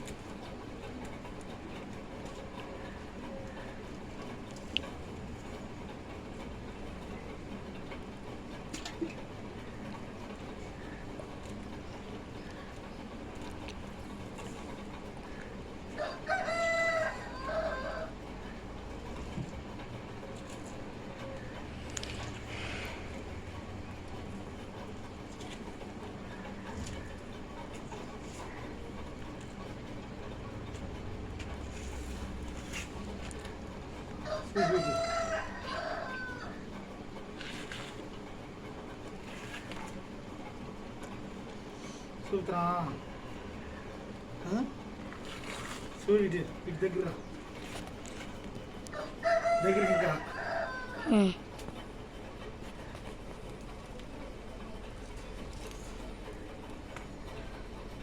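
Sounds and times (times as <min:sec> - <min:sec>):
steady background noise: 0:00.0 - 0:58.0
rooster crowing: 0:15.9 - 0:18.2, 0:34.2 - 0:36.6, 0:48.9 - 0:51.4.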